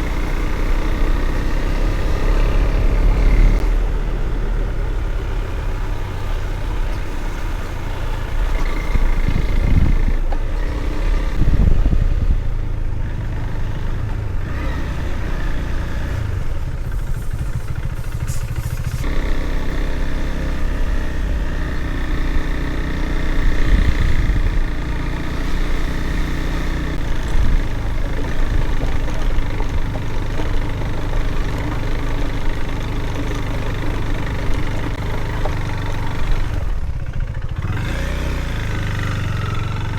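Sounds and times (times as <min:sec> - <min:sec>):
motorcycle engine running: 0:00.0 - 0:39.9
wind on microphone: 0:08.6 - 0:10.2, 0:11.3 - 0:12.7, 0:23.4 - 0:24.9.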